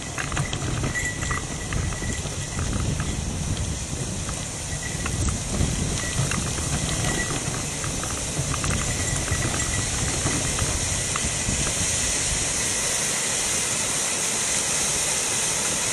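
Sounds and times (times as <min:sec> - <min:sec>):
light clicks and ticks: 0:00.0 - 0:11.8
wind rumbling on microphone: 0:00.0 - 0:14.0
steady hiss: 0:00.0 - 0:15.9.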